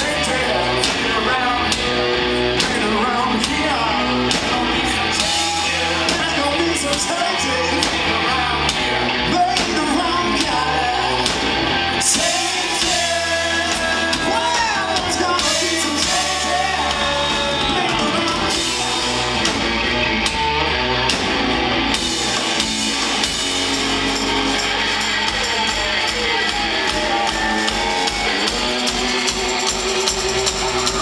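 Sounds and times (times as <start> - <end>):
person singing: 0.0 - 11.4, 12.0 - 19.3
bass guitar: 0.0 - 31.0
drums: 0.0 - 31.0
electric guitars: 0.0 - 31.0.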